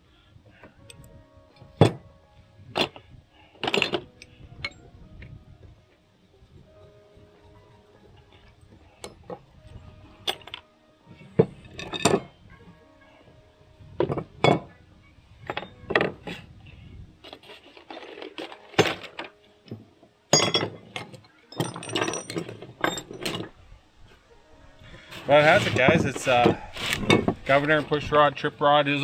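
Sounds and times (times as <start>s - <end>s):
steel engine parts clinking: 2.7s - 4.9s, 6.7s - 10.6s, 11.2s - 12.4s, 17.2s - 23.6s, 25.1s - 28.2s.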